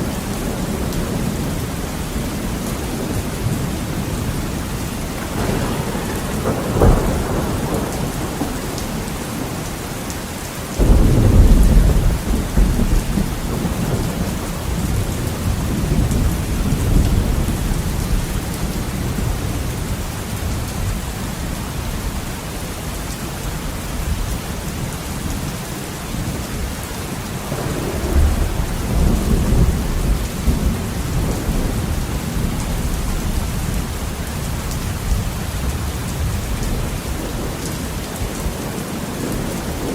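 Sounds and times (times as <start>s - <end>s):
thunder rumbling: 0.0s - 10.0s, 10.7s - 22.3s, 27.5s - 39.9s
heavy rain: 0.0s - 39.9s
thunder clap: 3.0s - 9.6s, 10.8s - 19.9s, 27.5s - 39.9s.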